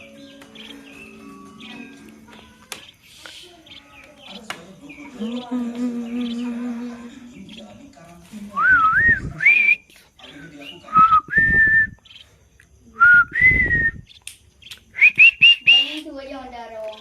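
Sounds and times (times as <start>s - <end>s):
person whistling: 10.9s - 12.0s, 13.0s - 14.0s, 15.0s - 15.9s.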